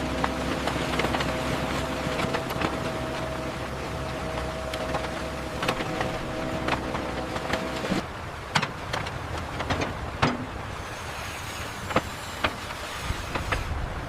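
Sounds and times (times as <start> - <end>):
heavy machinery rumbling: 0.0 - 14.0.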